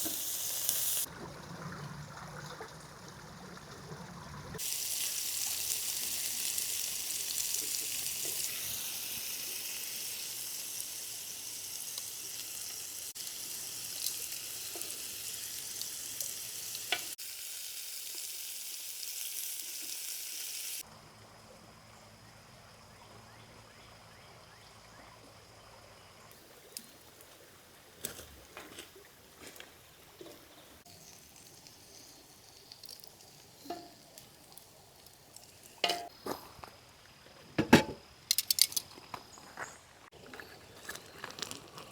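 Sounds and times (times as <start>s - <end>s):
food sizzling in a pan: 0.0s - 1.1s, 4.6s - 20.9s, 30.8s - 36.1s
cookware and utensils clinking: 33.6s - 34.2s, 35.8s - 36.2s.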